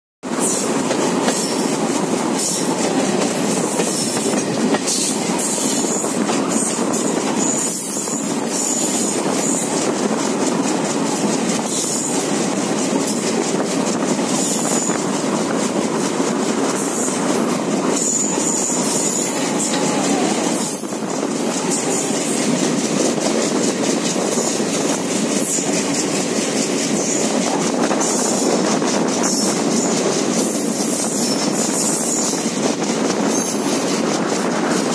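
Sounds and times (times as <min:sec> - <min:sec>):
train rolling rumble: 0:00.2 - 0:34.9
high-pitched wheel squeal: 0:17.9 - 0:22.5.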